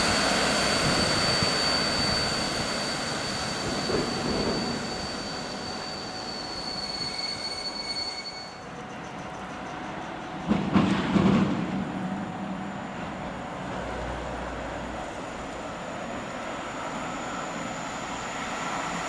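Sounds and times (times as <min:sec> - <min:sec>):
high-pitched squeal: 0:00.0 - 0:09.3
distant train on rails: 0:00.0 - 0:19.0.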